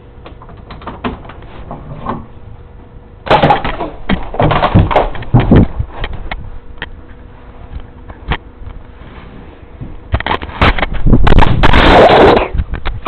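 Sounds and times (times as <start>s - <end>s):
loud clattering knocks and bangs: 3.3s - 5.8s.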